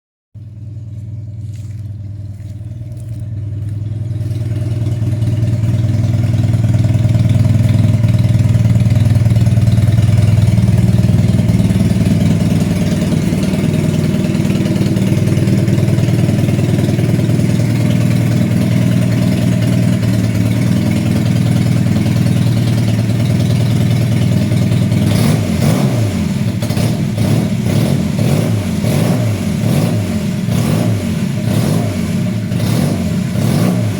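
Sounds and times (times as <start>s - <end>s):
motorcycle engine revving: 0.4s - 33.9s.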